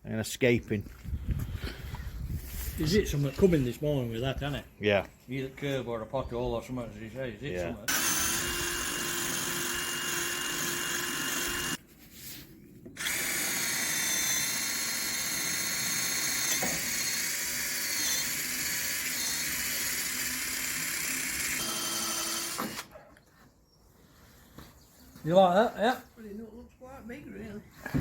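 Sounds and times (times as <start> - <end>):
power drill drilling: 7.9 - 11.8, 13.0 - 22.9.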